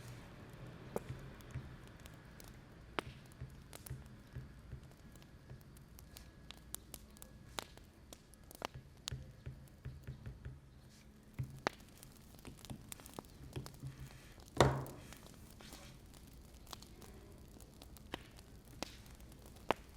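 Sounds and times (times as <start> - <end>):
wood fire crackling: 0.0 - 19.9.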